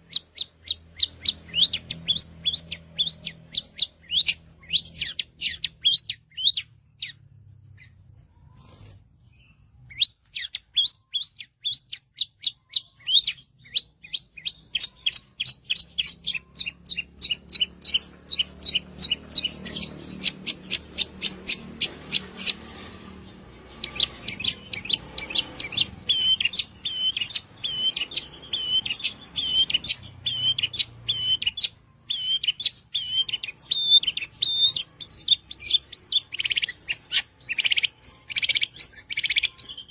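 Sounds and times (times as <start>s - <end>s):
bird singing sharp high notes: 9.3s - 39.9s.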